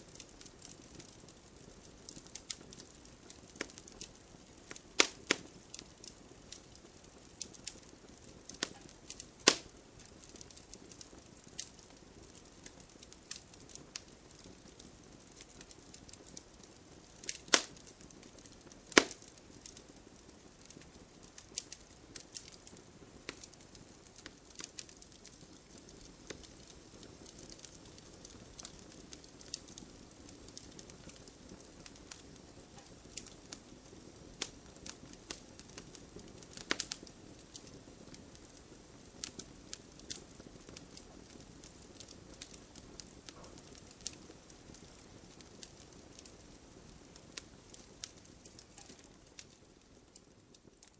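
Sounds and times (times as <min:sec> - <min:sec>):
fire crackling and popping: 0:00.0 - 0:50.9.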